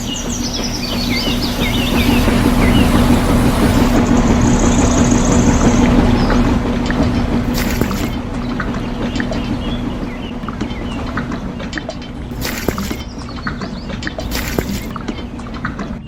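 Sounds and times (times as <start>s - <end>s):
small motor humming: 0.0s - 5.4s, 7.4s - 10.6s, 12.2s - 13.6s, 14.2s - 14.9s
rushing noise: 0.0s - 13.5s.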